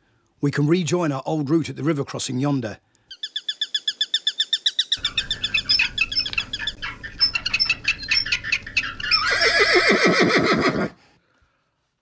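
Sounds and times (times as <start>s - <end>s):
bird chirps and whistles: 4.6s - 9.3s
low steady background hum: 5.0s - 9.9s
horse whinnying: 9.0s - 11.0s.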